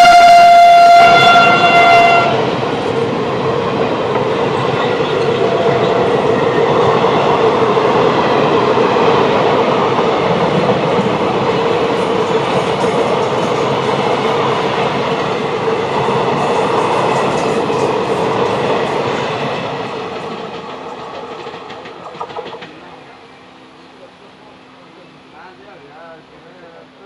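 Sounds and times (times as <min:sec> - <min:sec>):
locomotive horn: 0:00.0 - 0:02.6
train wheels clattering on rails: 0:00.8 - 0:23.1.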